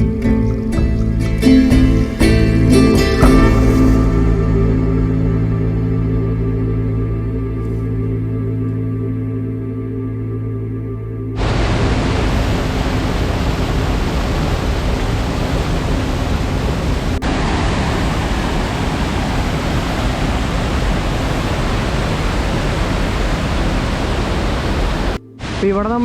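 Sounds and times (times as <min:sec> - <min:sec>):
waterfall rushing: 0:11.4 - 0:26.0.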